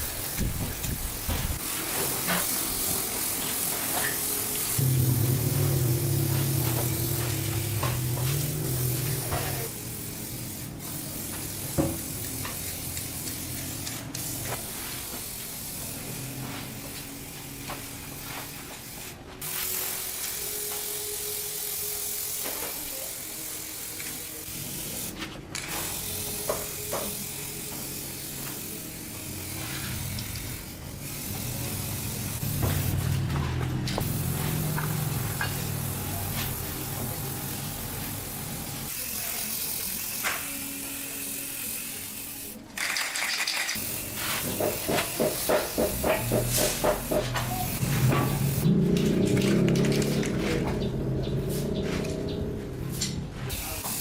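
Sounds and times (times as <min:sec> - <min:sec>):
steady hissing: 0:00.0 - 0:17.0
scattered clicks and knocks: 0:44.4 - 0:50.9.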